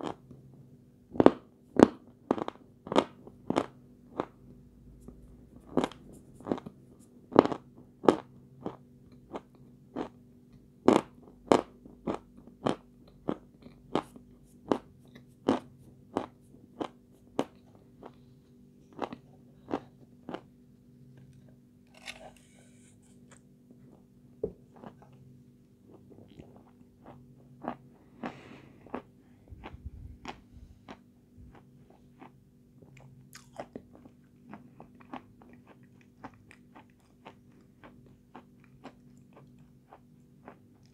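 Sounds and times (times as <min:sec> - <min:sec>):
faint steady hum: 0:00.0 - 0:40.9
chalk crunching while chewed: 0:18.9 - 0:20.5, 0:21.2 - 0:23.4, 0:25.9 - 0:40.9.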